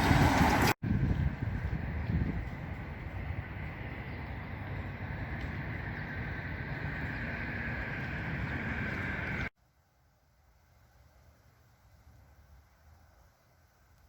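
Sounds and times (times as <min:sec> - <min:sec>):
city traffic rumble: 0:00.0 - 0:09.5.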